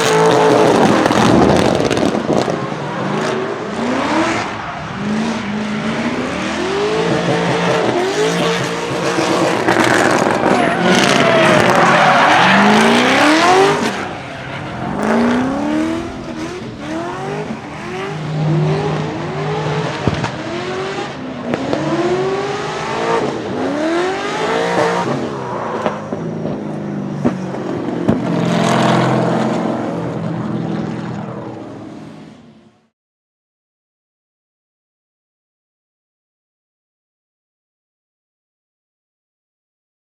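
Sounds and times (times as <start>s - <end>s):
car engine revving: 0.0s - 32.1s
tyre squeal: 8.1s - 16.7s.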